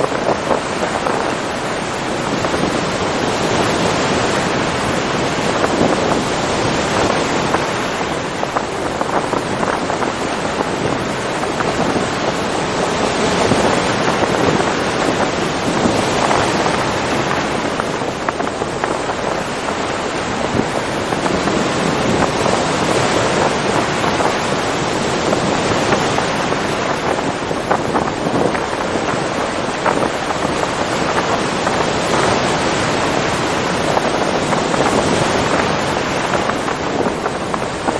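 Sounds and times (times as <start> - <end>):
ocean surf washing: 0.0 - 37.9.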